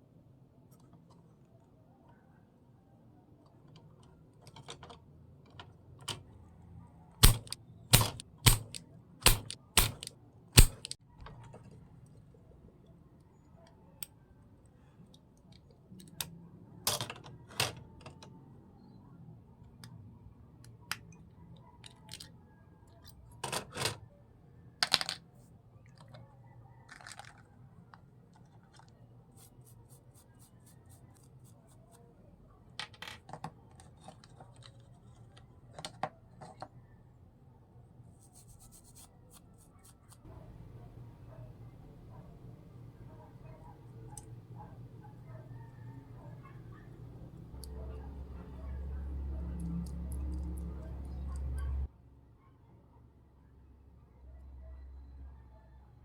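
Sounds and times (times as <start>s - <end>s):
small tools clicking and tapping: 7.2s - 11.4s.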